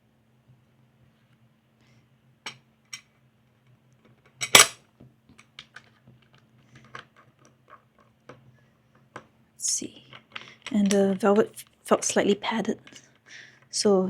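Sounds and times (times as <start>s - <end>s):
parts clattering: 4.1s - 4.8s, 5.4s - 9.3s, 10.1s - 13.2s
small hard parts clicking: 5.4s - 8.4s, 10.1s - 11.3s.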